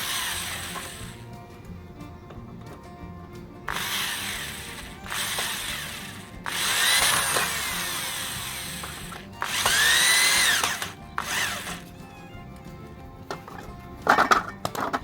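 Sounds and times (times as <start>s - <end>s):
electric drill whining: 0.0s - 1.4s, 3.7s - 12.7s.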